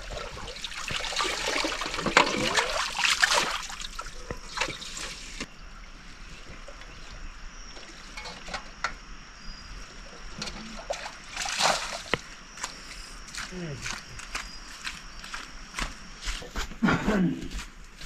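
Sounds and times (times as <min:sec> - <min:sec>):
water trickling and splashing: 0:00.0 - 0:08.6, 0:09.8 - 0:13.5.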